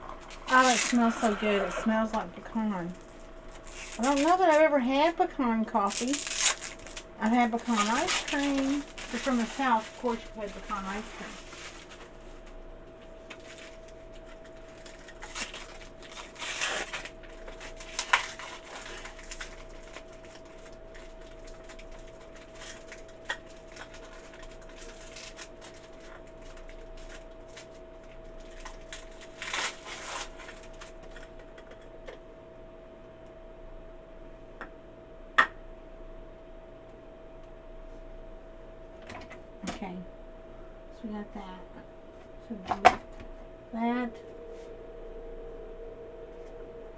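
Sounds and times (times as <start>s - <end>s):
plastic packaging rustling: 0.0s - 4.8s, 5.7s - 12.6s, 13.2s - 31.4s
faint steady hum: 0.0s - 46.9s.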